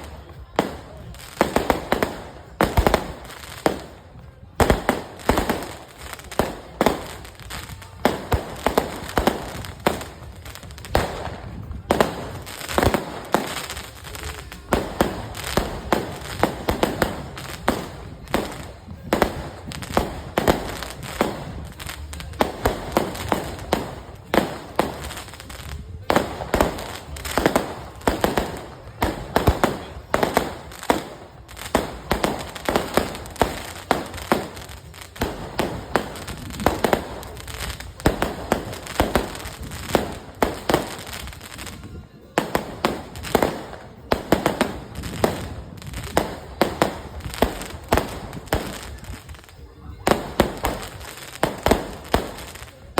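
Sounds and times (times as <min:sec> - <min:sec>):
fireworks banging: 0:00.0 - 0:52.9.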